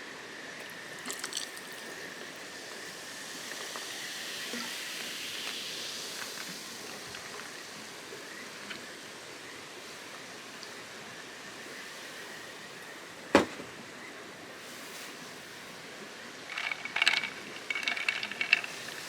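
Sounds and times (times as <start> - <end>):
steady rushing hiss: 0.0 - 19.0
sharp pops: 13.4 - 13.8
campfire crackling: 16.5 - 19.0.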